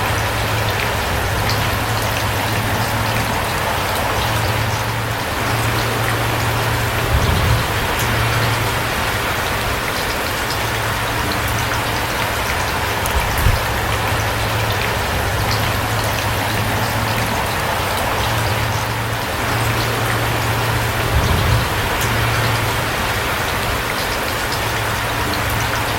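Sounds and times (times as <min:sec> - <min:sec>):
rain falling: 0:00.0 - 0:25.9
raindrops ticking: 0:00.0 - 0:25.9
low thumps: 0:12.9 - 0:14.0.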